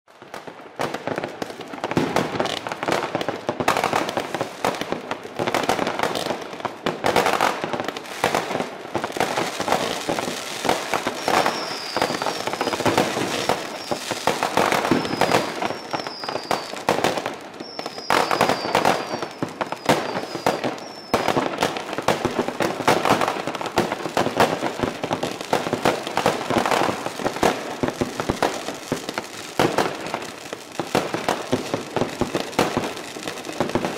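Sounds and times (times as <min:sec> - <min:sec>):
fireworks banging and crackling: 0:00.1 - 0:33.9
short high falling whistles: 0:11.1 - 0:12.9, 0:13.7 - 0:14.0, 0:14.9 - 0:16.8, 0:17.6 - 0:21.4.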